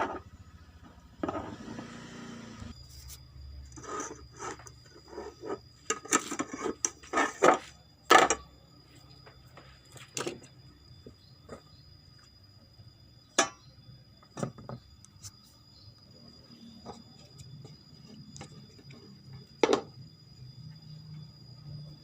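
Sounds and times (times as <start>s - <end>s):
tool scraping: 1.2s - 7.7s.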